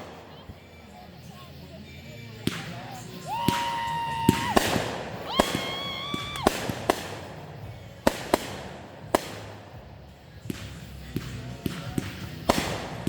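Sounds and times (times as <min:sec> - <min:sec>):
firework bangs and pops: 0:00.0 - 0:01.0, 0:02.4 - 0:13.0
firework whistles: 0:02.1 - 0:13.0.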